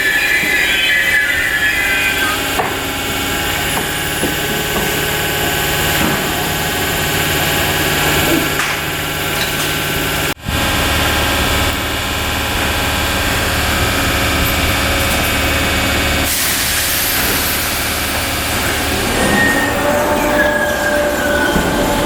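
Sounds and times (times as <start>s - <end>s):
electric train hum and whine: 0.0s - 22.0s.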